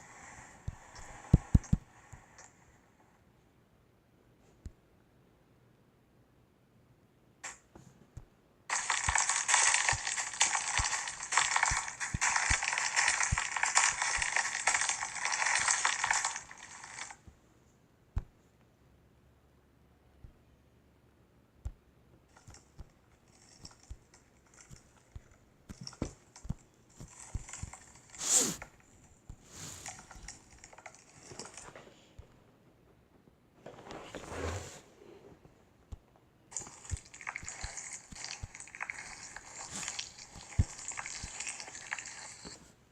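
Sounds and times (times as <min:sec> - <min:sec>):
sticky clicks and crackles: 0:08.7 - 0:17.2, 0:22.3 - 0:32.3, 0:35.9 - 0:42.6.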